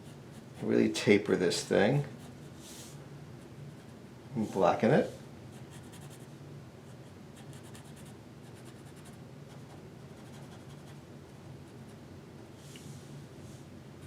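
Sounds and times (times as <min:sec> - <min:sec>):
faint low hum: 0:00.0 - 0:14.0
pencil scratching on paper: 0:05.5 - 0:06.3, 0:07.4 - 0:11.0.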